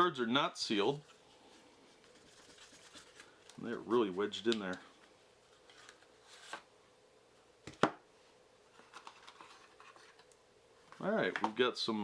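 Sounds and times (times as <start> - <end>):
faint card rustling: 0.9 - 6.7.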